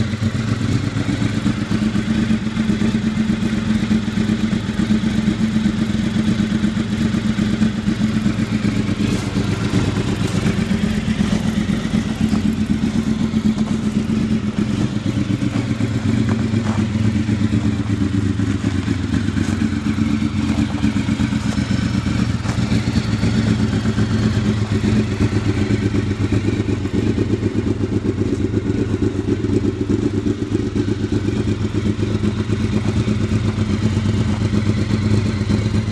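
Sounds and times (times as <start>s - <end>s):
motorcycle engine running steadily: 0.0s - 35.9s.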